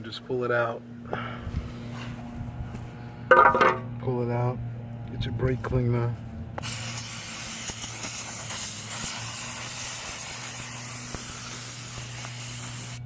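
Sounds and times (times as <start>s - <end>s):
aerosol spray hissing: 6.6s - 13.0s.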